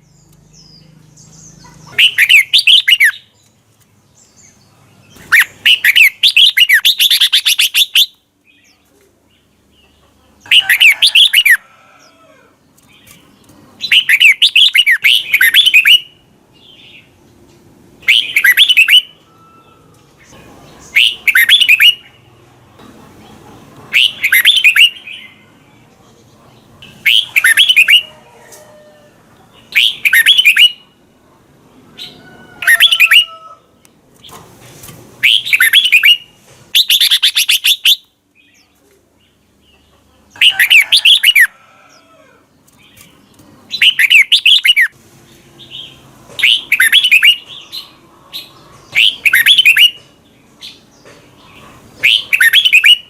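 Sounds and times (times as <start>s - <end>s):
bulbul singing warbling phrases: 0.0s - 3.3s, 13.8s - 16.3s, 18.0s - 19.3s, 20.2s - 22.3s, 23.9s - 25.9s, 26.8s - 28.1s, 29.4s - 31.0s, 45.9s - 48.0s.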